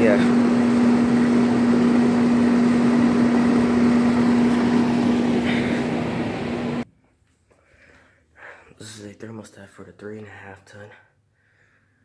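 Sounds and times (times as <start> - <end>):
compressor hum: 0.0 - 6.8
fan whoosh: 0.0 - 6.8.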